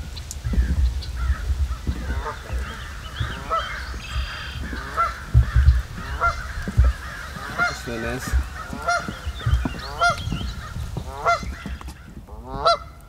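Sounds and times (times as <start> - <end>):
birds honking: 0.0 - 13.0
low rumbling on microphone: 0.0 - 13.0.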